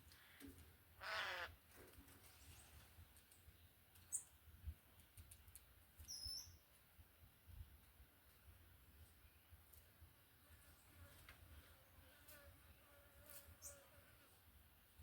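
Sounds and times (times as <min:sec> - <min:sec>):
high-pitched bird chirps: 0:06.1 - 0:06.6.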